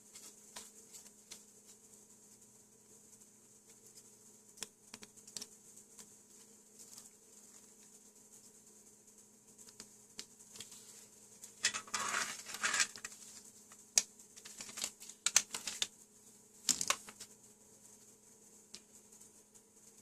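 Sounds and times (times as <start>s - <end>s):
faint steady hum: 0.0s - 20.0s
scraping rustle: 10.6s - 13.5s
small hard objects clicking: 11.6s - 15.9s, 16.6s - 17.3s.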